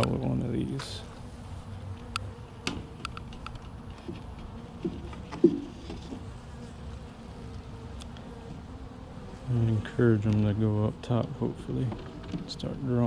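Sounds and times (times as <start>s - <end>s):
bees buzzing: 0.0s - 13.0s
hive frames knocking: 2.6s - 6.3s.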